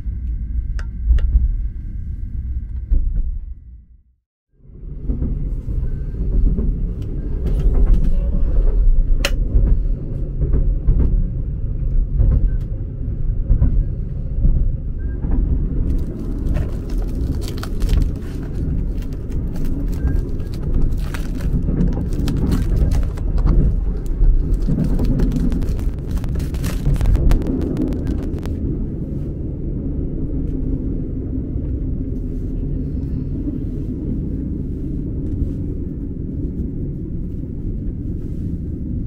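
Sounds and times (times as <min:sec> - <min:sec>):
train carriage rumble: 0:04.6 - 0:39.0
plastic cling film crinkling: 0:15.8 - 0:28.5.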